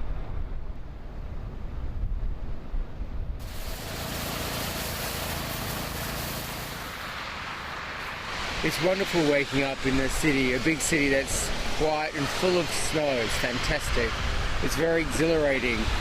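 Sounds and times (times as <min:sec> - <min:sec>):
steady hiss: 0:03.4 - 0:16.0.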